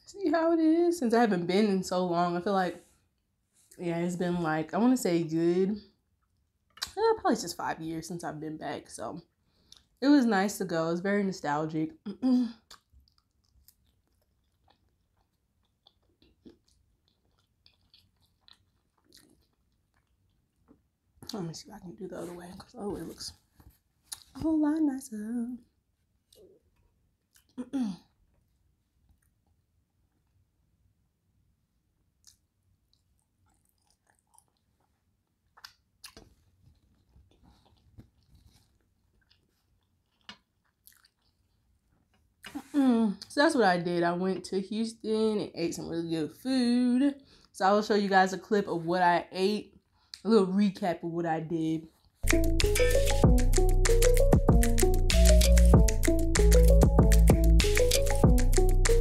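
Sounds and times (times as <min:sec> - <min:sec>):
wet mouth sounds: 0:12.1 - 0:20.1, 0:32.2 - 0:36.3, 0:52.2 - 0:59.0
person chewing: 0:12.6 - 0:21.4, 0:24.0 - 0:24.4, 0:26.2 - 0:27.6, 0:32.1 - 0:42.6, 0:52.2 - 0:59.0.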